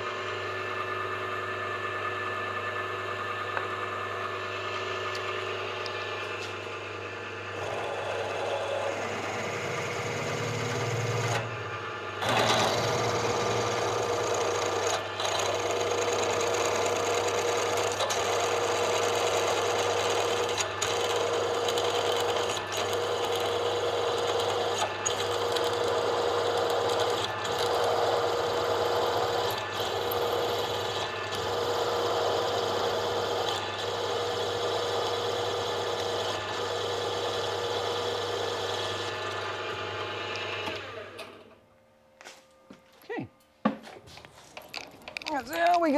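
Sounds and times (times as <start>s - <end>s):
electric drill cutting into metal: 8.2s - 11.5s, 12.2s - 41.2s.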